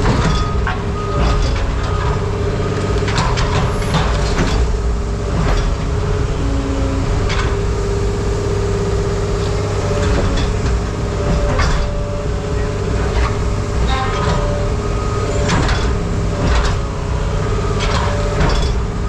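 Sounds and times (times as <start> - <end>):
heavy machine engine running: 0.0 - 19.0.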